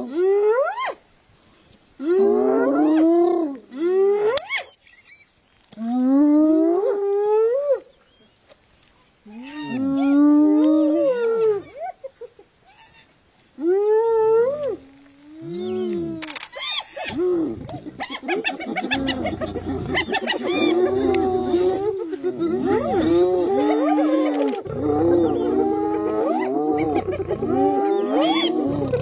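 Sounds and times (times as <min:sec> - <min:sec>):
hyenas calling: 0:15.5 - 0:29.0
hyenas cackling: 0:16.5 - 0:29.0.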